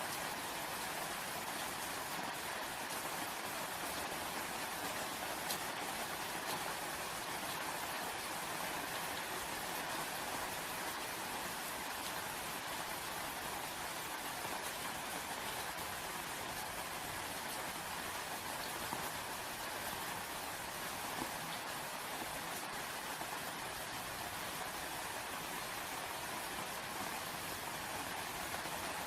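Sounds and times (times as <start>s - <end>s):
steady rain falling: 0.0s - 29.0s
rain drop ticks: 4.8s - 6.8s.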